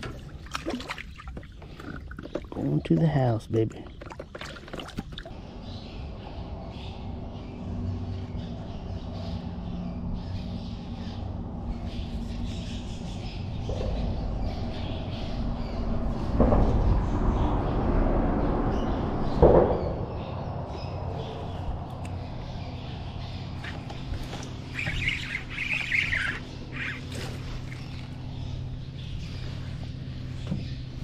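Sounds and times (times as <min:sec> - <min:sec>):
birds squawking: 0:21.4 - 0:31.0.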